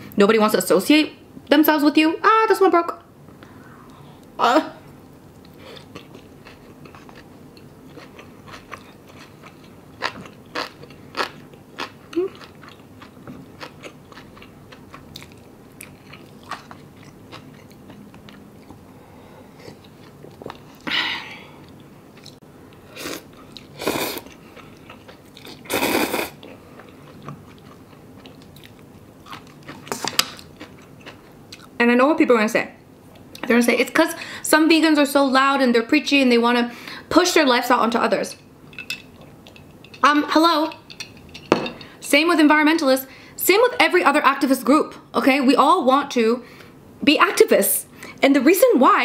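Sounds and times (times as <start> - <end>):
close-up chewing: 5.4 - 18.8.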